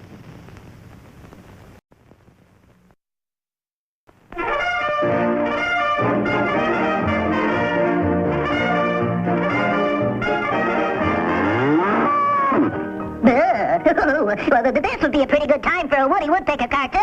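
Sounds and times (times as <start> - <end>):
brass-led orchestral music: 4.4 - 13.2.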